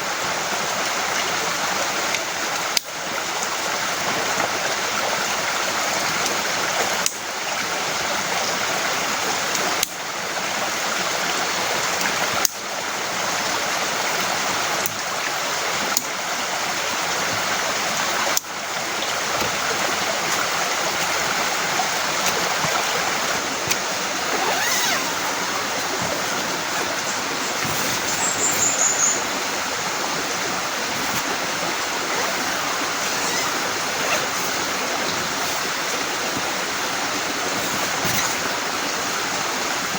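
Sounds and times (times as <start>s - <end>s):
heavy rain falling: 17.4s - 39.9s.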